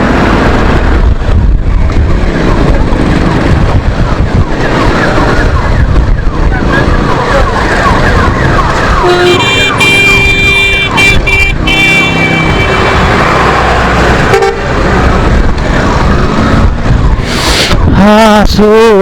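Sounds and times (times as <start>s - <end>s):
traffic rushing: 0.0s - 19.0s
wind noise: 0.0s - 19.0s
vehicle horns honking: 9.0s - 13.2s, 14.2s - 14.8s.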